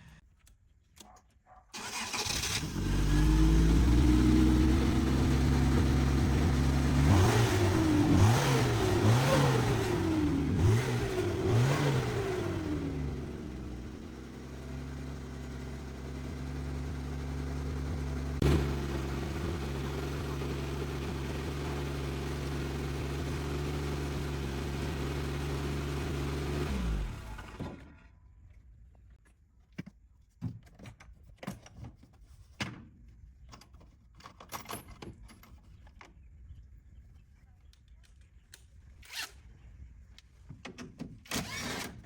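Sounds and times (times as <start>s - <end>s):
engine running: 1.8s - 28.1s
small clicks and handling noises: 37.4s - 39.4s.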